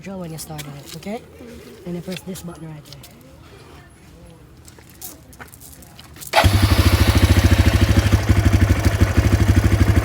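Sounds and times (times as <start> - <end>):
atv engine cranking and idling: 6.3 - 10.0.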